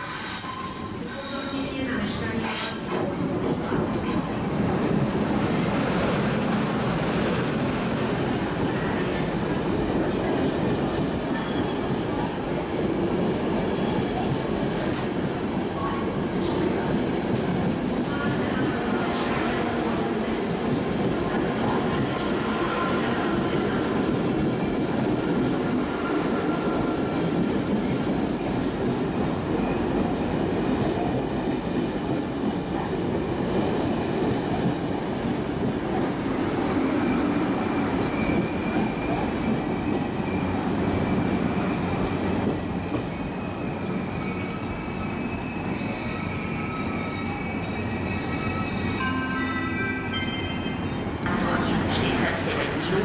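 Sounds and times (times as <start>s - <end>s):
train wheels squealing: 0.0s - 1.6s, 11.1s - 12.1s, 33.8s - 34.4s, 37.0s - 49.4s
train rumbling on rails: 0.0s - 53.0s.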